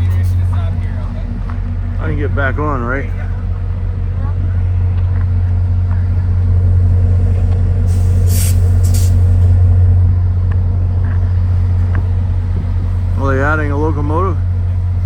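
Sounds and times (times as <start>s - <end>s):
locomotive idling drone: 0.0s - 15.0s
air hiss: 7.8s - 9.6s.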